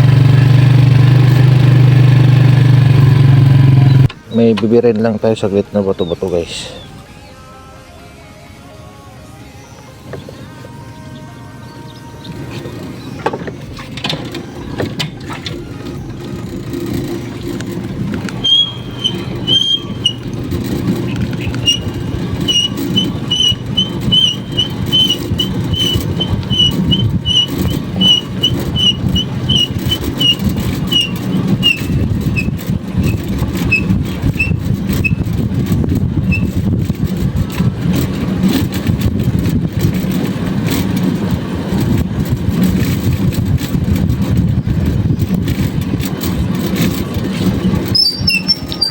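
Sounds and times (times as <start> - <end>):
vehicle engine rumbling: 0.0 - 48.9
bird chirping: 5.3 - 7.4, 18.4 - 35.2, 47.9 - 48.9.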